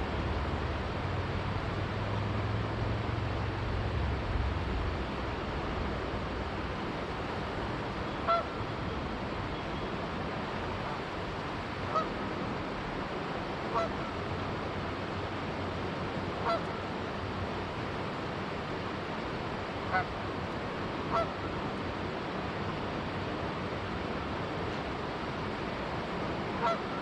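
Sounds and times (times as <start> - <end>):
river flowing: 0.0 - 27.0
geese honking: 8.2 - 8.6, 11.9 - 12.1, 13.7 - 14.2, 16.4 - 16.6, 19.9 - 20.1, 21.1 - 21.4, 26.6 - 27.0.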